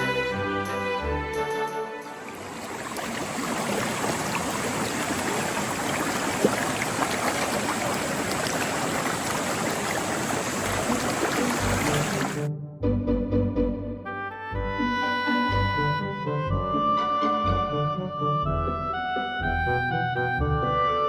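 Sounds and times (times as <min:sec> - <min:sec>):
stream water rushing: 0:00.0 - 0:12.5
small splashing ticks: 0:02.3 - 0:12.4.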